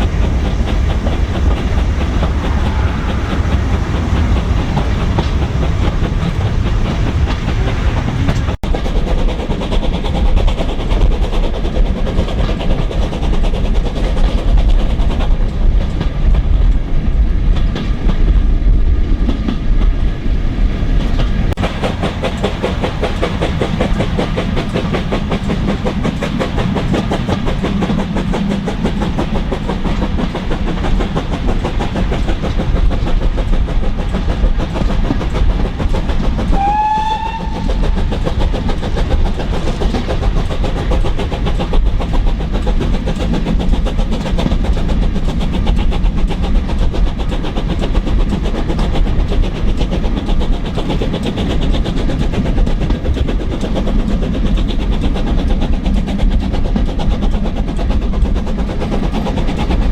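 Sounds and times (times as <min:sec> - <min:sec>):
steam train rumbling: 0:00.0 - 0:59.9
steam whistle blast: 0:36.6 - 0:37.7.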